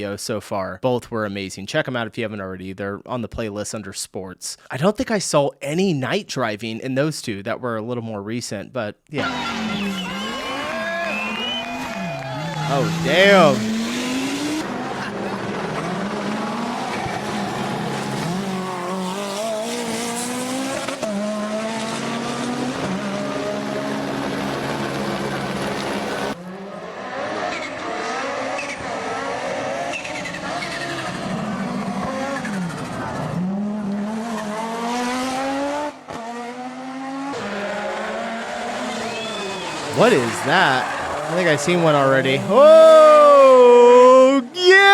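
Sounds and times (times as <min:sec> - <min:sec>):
rally car engines revving: 0:09.2 - 0:44.9.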